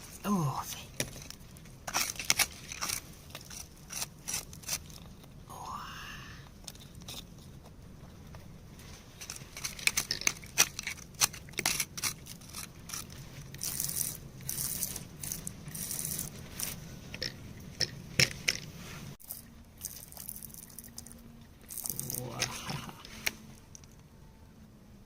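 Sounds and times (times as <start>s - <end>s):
hand tool scraping rock: 1.0s - 5.3s, 9.1s - 17.9s.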